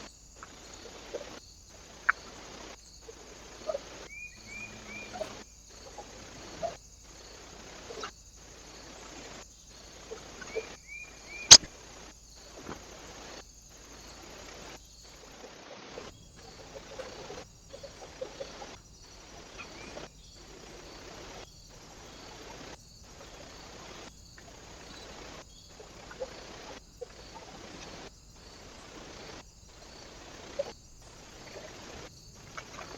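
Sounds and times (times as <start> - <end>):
faint short bird chirps: 3.6 - 6.8
sharp loud click: 11.5 - 11.7.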